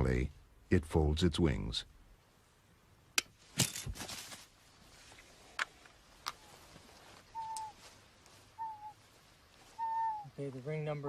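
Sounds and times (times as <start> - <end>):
rustling: 3.4 - 11.0
whistled bird calls: 7.3 - 7.8, 8.5 - 9.0, 9.7 - 10.4.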